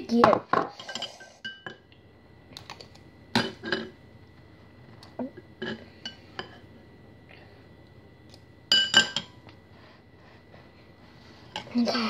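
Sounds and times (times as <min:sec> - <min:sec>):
dishes clinking: 0:00.2 - 0:01.9, 0:03.3 - 0:04.0, 0:05.6 - 0:06.7, 0:08.7 - 0:09.4.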